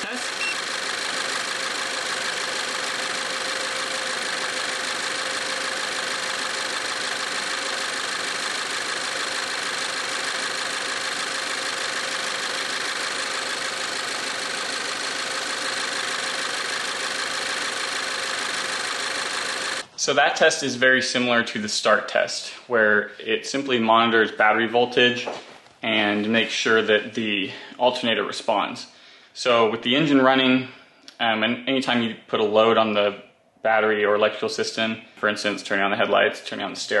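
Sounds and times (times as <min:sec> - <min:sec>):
car engine idling: 0:00.2 - 0:19.8.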